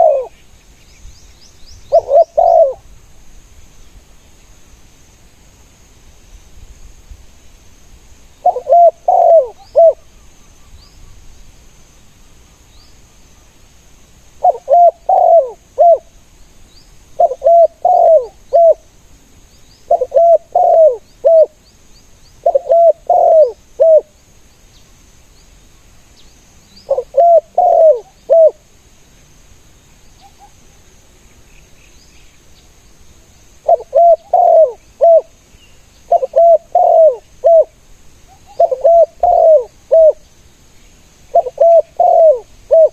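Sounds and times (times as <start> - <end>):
dove cooing: 0.0 - 0.4, 1.9 - 2.9, 8.4 - 10.1, 14.4 - 16.1, 17.2 - 18.8, 19.9 - 21.6, 22.4 - 24.1, 26.9 - 28.6, 33.6 - 35.3, 36.1 - 40.2, 41.3 - 42.9
small birds chirping: 0.0 - 2.9, 33.6 - 37.7.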